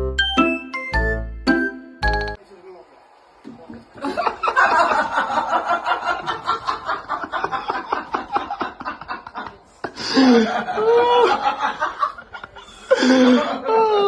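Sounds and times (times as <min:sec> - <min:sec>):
person snickering: 0:09.8 - 0:11.4.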